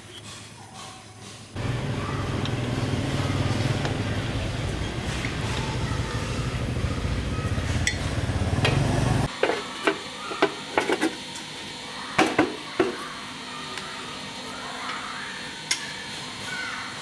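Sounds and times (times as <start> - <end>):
motorcycle engine running: 1.6 - 9.3.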